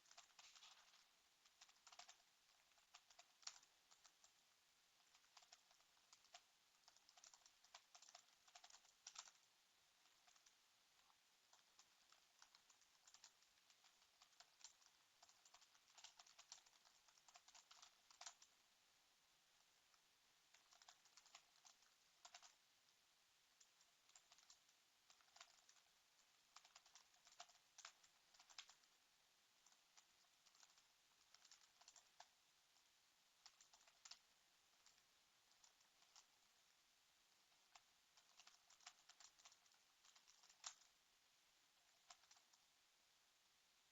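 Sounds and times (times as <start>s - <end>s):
keyboard typing clicks: 0.0s - 4.4s, 5.0s - 9.4s, 10.0s - 18.5s, 20.5s - 22.6s, 23.6s - 25.9s, 26.5s - 28.9s, 29.6s - 32.3s, 33.4s - 34.2s, 37.7s - 40.9s, 41.9s - 42.6s.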